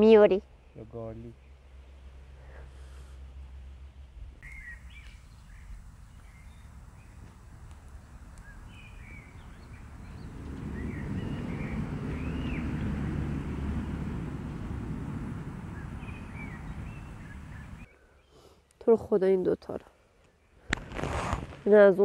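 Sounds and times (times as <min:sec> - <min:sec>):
low rushing noise: 0:04.2 - 0:17.9
small birds chirping: 0:04.4 - 0:20.7.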